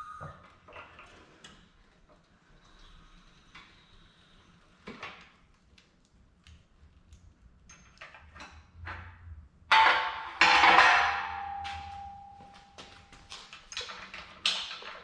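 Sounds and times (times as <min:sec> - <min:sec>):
loud metal clanks with ringing: 0:09.7 - 0:13.0.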